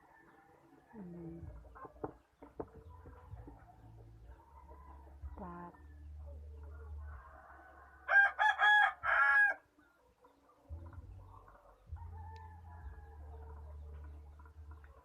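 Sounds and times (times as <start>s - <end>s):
rooster crowing: 7.2s - 9.6s.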